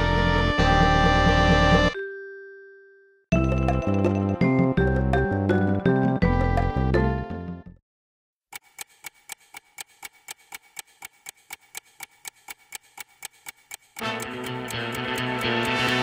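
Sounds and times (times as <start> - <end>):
music: 0.0 - 7.8, 14.0 - 16.0
steady ticking clicks: 8.5 - 16.0.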